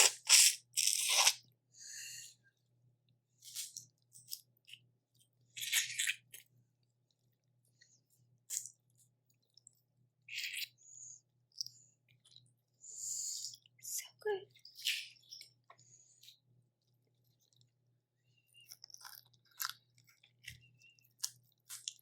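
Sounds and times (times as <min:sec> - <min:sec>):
chewing: 0:18.5 - 0:22.0
shells cracking and crunching: 0:18.6 - 0:22.0.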